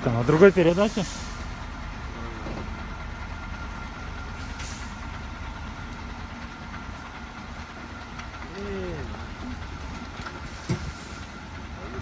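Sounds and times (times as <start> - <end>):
diesel truck engine idling: 0.0 - 12.0
short hiss: 0.3 - 1.6, 4.4 - 5.1.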